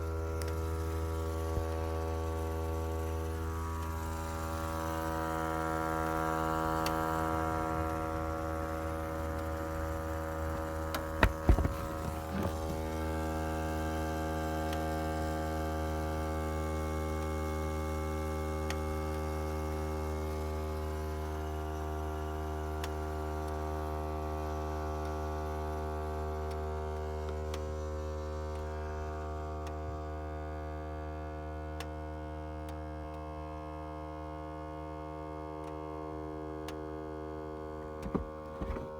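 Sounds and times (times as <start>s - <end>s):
steady electrical buzz: 0.0s - 26.3s
short knocks: 9.7s - 13.0s, 37.9s - 38.9s.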